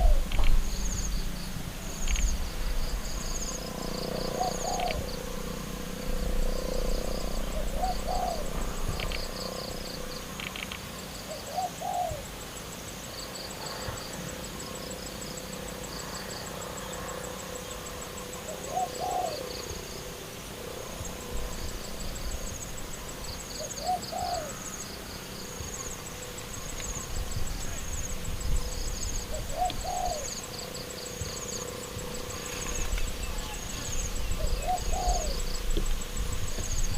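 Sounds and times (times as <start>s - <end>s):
dove cooing: 0.0s - 1.4s, 2.0s - 10.6s, 11.3s - 12.3s, 18.2s - 20.0s, 20.8s - 36.9s
high insect whine: 0.0s - 36.9s
insects chirping in pulsed runs: 0.0s - 36.9s.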